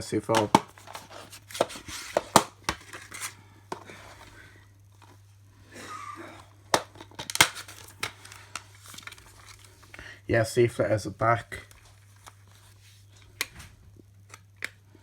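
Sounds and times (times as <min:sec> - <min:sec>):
plastic case clicks and snaps: 0:06.7 - 0:08.2.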